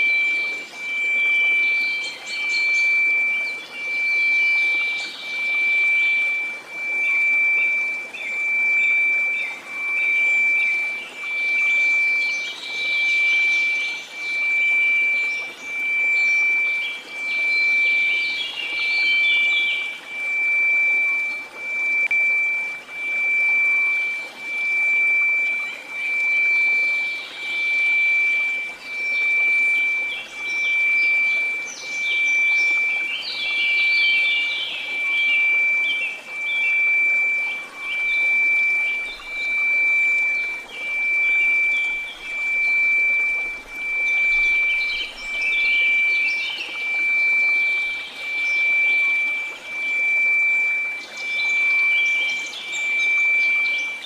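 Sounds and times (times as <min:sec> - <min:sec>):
steady sine tone: 0:00.0 - 0:54.0.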